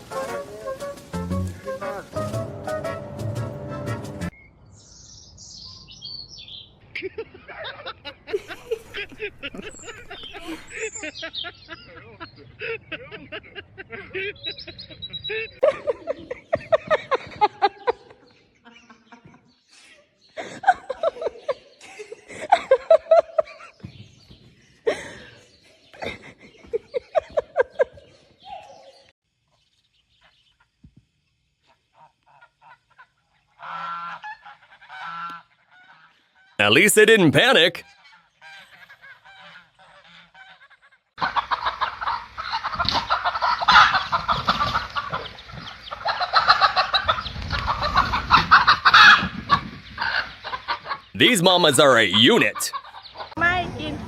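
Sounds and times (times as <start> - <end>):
person laughing: 8.3 - 11.1
chickens clucking: 8.4 - 11.1, 38.8 - 51.8.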